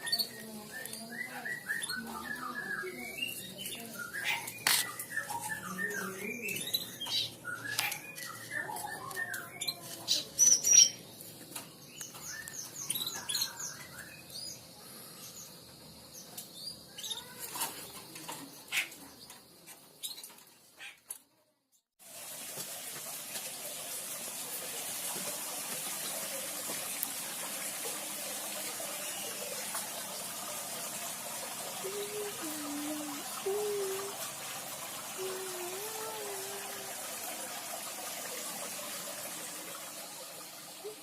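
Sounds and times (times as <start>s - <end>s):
songbirds chirping and twittering: 0.0s - 21.8s
rushing water noise: 22.0s - 41.0s.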